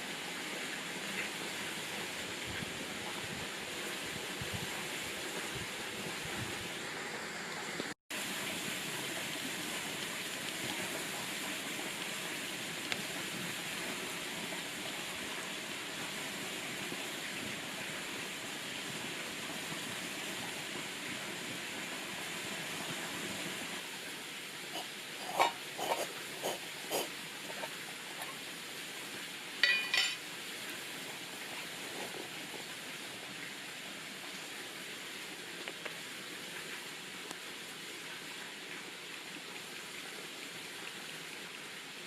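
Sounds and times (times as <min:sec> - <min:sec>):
clatter of bright clinks: 0:29.6 - 0:30.2.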